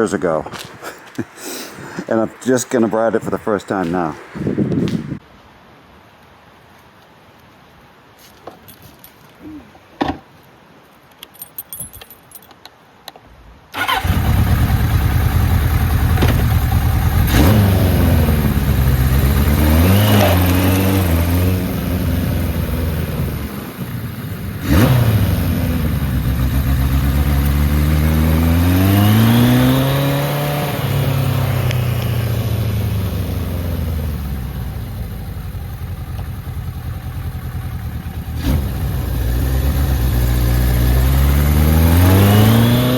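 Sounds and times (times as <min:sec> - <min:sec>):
motorcycle engine running: 0:13.8 - 0:42.9.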